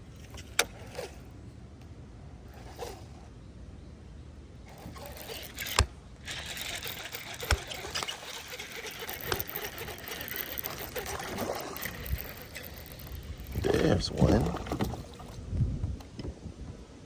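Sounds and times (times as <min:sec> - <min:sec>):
fishing reel ticking: 0:04.7 - 0:14.0.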